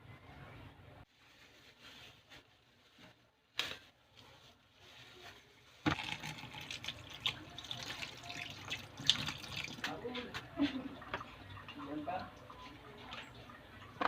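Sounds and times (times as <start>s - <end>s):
tap water running into sink: 5.9s - 10.0s.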